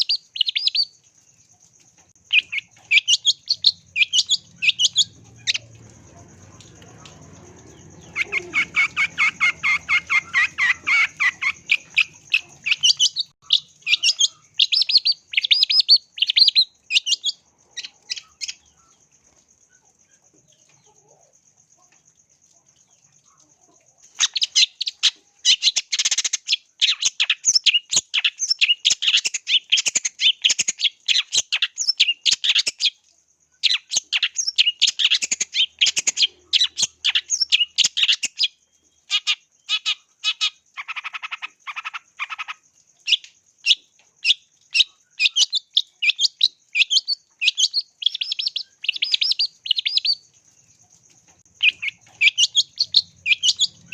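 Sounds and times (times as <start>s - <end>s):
bird singing chattering notes: 0.0s - 1.0s, 2.2s - 18.8s, 33.7s - 50.3s, 51.4s - 53.9s.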